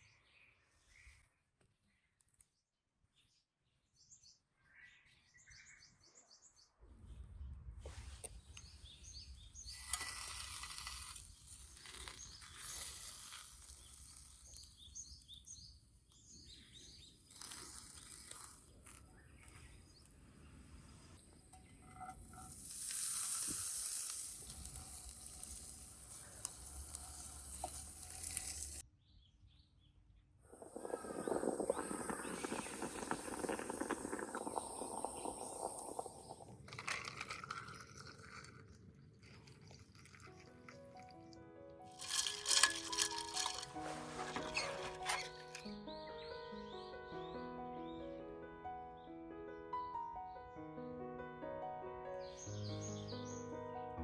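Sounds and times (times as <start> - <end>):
small birds chirping: 8.3 - 36.7, 52.2 - 53.7
hiss: 22.3 - 28.8, 30.6 - 36.4.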